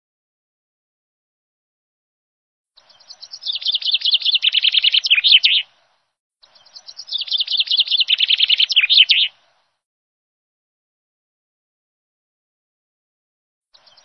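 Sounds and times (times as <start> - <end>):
bird chirping: 2.8 - 5.8, 6.4 - 9.4, 13.7 - 14.0.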